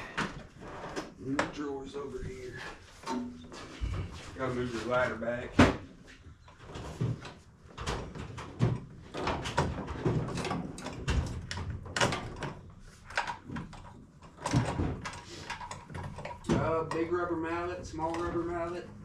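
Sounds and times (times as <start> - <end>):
tools being set down: 3.0 - 3.7
drawers knocking and rattling: 6.6 - 17.2.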